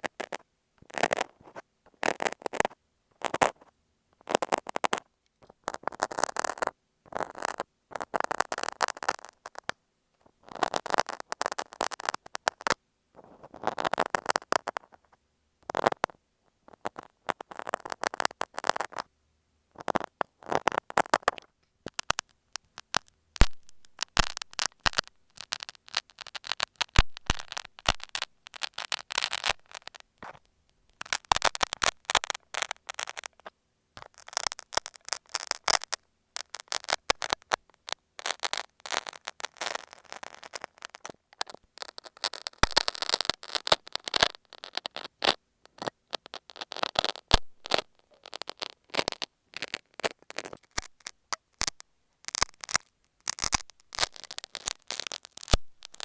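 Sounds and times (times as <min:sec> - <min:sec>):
knife scraping tape: 0:19.8 - 0:30.4, 0:31.0 - 0:37.4, 0:38.2 - 0:56.0.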